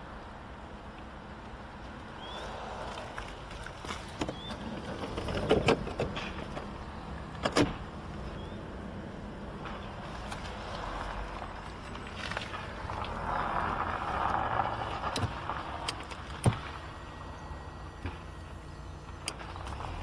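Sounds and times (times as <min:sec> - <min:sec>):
low steady rumble: 0:04.4 - 0:20.0.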